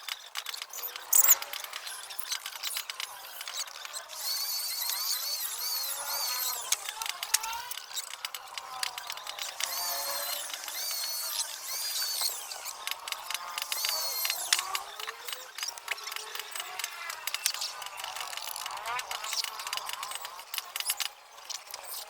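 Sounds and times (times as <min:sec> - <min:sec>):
electric power tool whining: 0:00.0 - 0:21.9.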